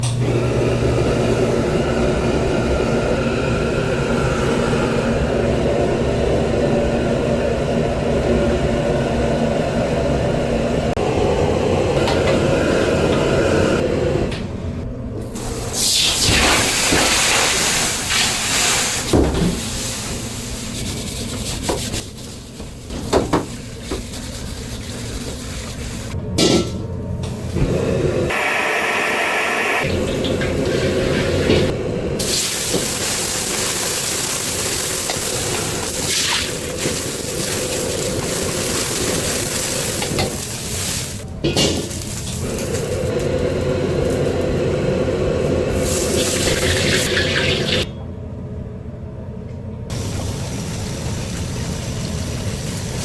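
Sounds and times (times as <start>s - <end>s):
water sizzling in a hot wok: 32.2s - 41.2s, 45.7s - 47.8s, 49.9s - 53.0s.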